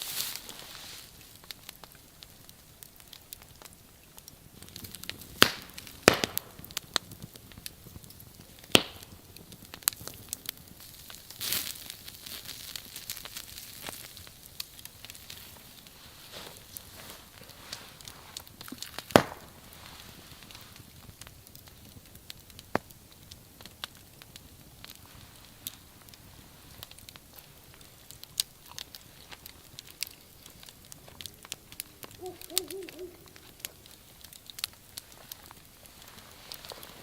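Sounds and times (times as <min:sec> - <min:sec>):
sharp pops from fire: 0:00.0 - 0:37.0
wood fire crackling: 0:00.0 - 0:37.0
brief wavering call: 0:32.2 - 0:33.5.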